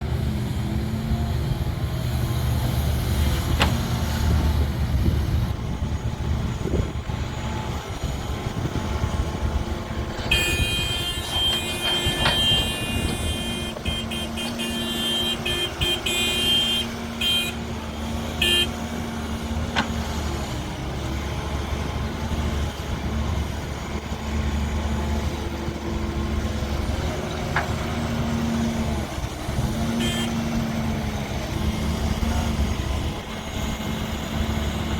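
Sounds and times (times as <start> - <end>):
heavy diesel engine running: 0.0 - 34.9
high horn-like toots: 10.3 - 17.6, 30.0 - 30.4.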